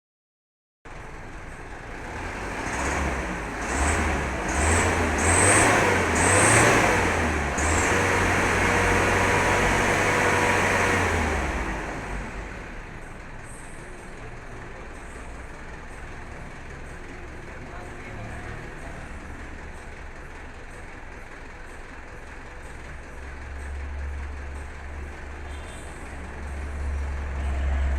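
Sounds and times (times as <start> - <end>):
truck engine revving: 1.7 - 13.6, 22.6 - 27.9.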